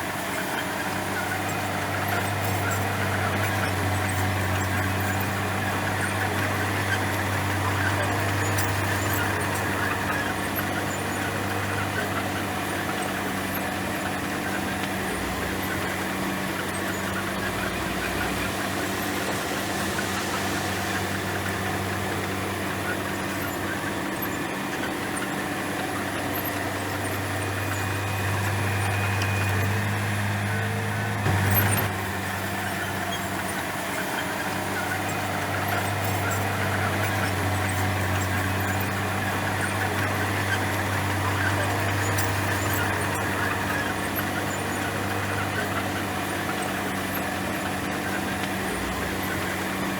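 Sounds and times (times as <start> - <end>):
bulldozer diesel engine running: 0.0 - 49.9.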